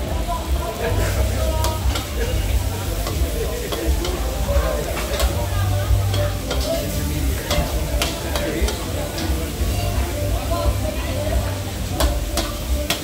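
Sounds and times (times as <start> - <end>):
food sizzling in a pan: 0.0 - 13.0
metal utensil clicking on pan: 1.0 - 10.0, 11.6 - 13.0.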